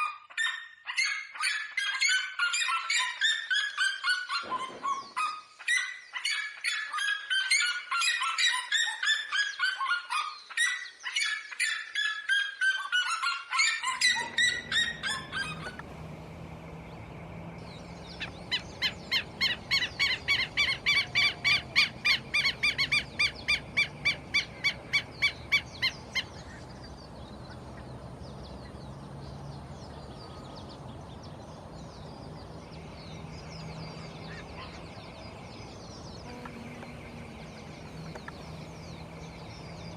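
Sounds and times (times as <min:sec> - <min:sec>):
harsh repeated bird calls: 0:00.0 - 0:39.9
yelping bird calls: 0:00.0 - 0:39.9
steady outdoor hiss: 0:14.1 - 0:39.9.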